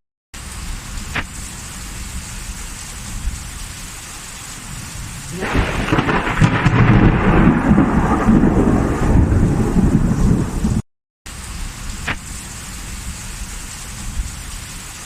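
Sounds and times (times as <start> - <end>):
steady rain: 0.4 - 15.0
thunderclap rumbling: 5.3 - 10.8.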